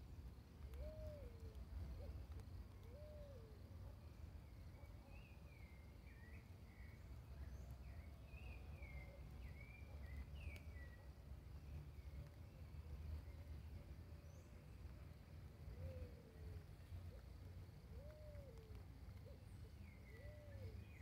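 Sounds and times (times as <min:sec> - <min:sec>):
faint low rumble: 0:00.0 - 0:21.0
birds whistling and chirping: 0:04.8 - 0:11.1, 0:18.0 - 0:21.0.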